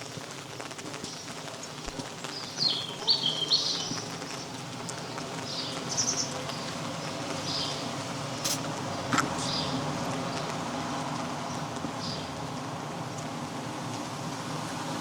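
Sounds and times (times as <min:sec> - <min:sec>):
rain patter: 0:00.0 - 0:15.0
high bird chirps: 0:02.4 - 0:04.5.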